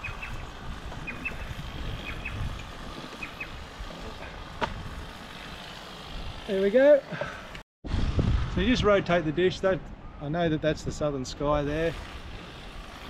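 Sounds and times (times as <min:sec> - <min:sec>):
bird chirping: 0:00.0 - 0:02.5.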